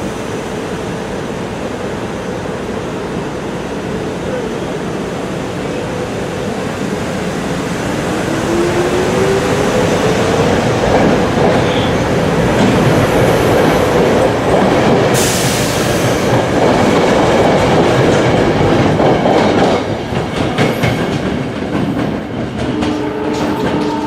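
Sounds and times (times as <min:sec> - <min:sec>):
train wheels clacking on rails: 0:08.3 - 0:24.0
train hiss: 0:15.0 - 0:16.4.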